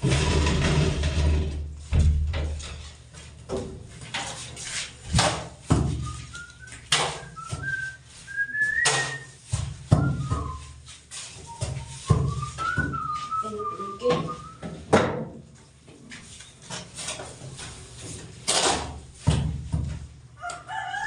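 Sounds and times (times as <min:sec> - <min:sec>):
person whistling: 0:06.0 - 0:09.4, 0:10.0 - 0:10.8, 0:11.4 - 0:14.6.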